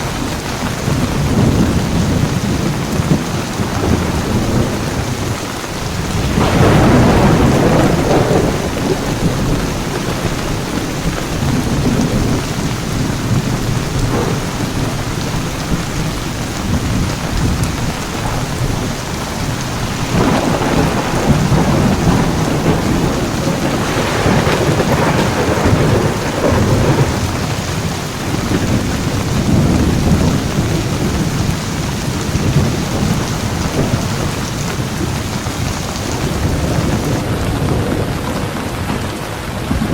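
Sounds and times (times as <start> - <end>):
heavy rain pouring: 0.0 - 39.9
thunder rumbling: 0.0 - 39.9.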